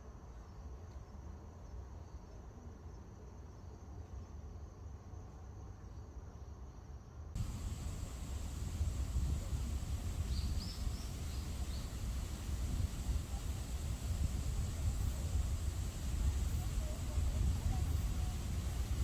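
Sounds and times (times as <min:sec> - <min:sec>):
insects chirring: 0:06.8 - 0:19.0
even hiss: 0:07.4 - 0:19.0.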